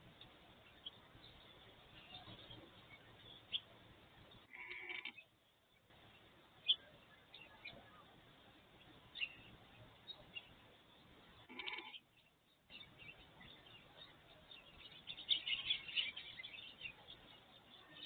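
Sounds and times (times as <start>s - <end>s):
small birds chirping: 0.0s - 18.0s
farm animal bleat: 4.5s - 5.2s, 11.4s - 12.0s.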